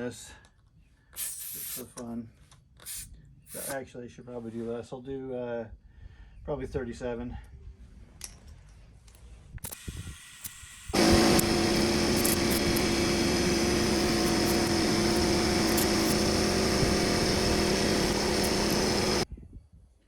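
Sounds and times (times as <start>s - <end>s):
air compressor running: 2.9s - 3.7s, 9.8s - 19.3s.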